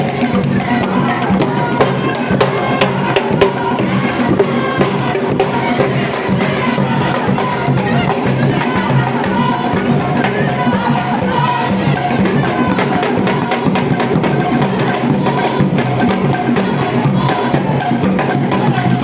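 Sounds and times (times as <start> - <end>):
drum strokes: 0.0 - 19.0.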